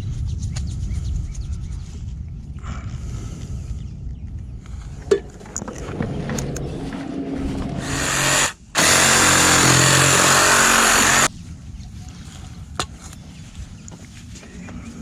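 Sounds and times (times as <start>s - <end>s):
power tool motor running: 7.2s - 11.3s.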